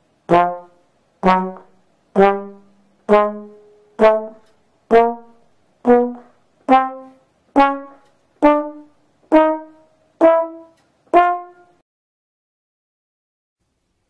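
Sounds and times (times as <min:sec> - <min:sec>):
trombone short notes: 0:00.3 - 0:11.8.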